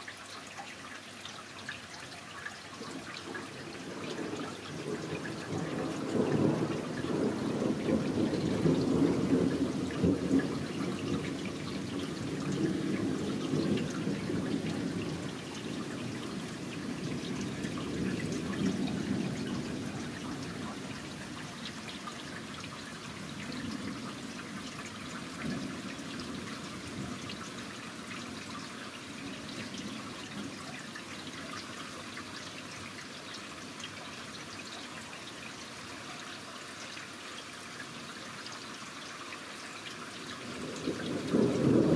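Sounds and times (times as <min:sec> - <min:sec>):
rain pattering: 0:00.0 - 0:41.9
thunder rumbling: 0:03.9 - 0:20.7, 0:40.5 - 0:41.9.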